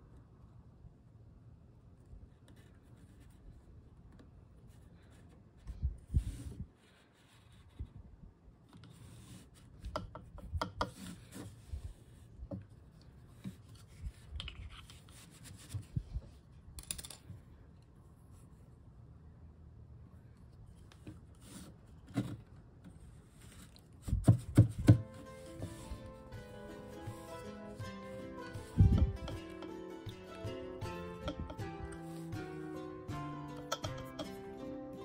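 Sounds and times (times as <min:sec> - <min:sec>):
wooden shuttle tapping loom: 0:09.8 - 0:11.0, 0:24.2 - 0:34.8
fingers rubbing threads: 0:24.9 - 0:34.4.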